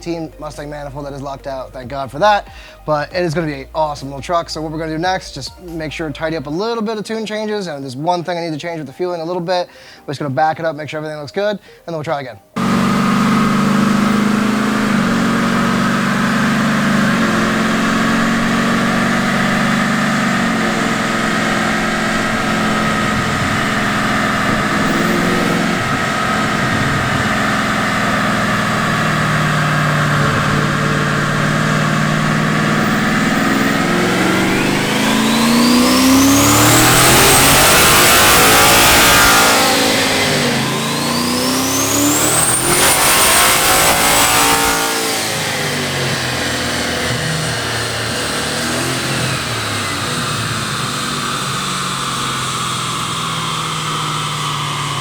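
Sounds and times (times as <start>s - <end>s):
truck engine running: 12.6s - 55.0s
turbo whistle: 19.1s - 28.8s.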